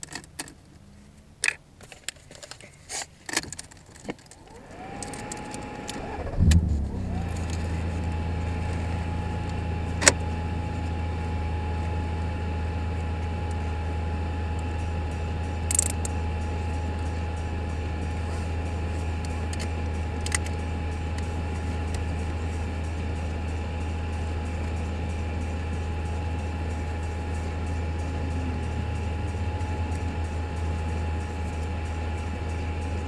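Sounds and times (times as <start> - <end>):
car engine starting and idling: 3.3 - 33.0
thin steady whine: 4.1 - 33.0.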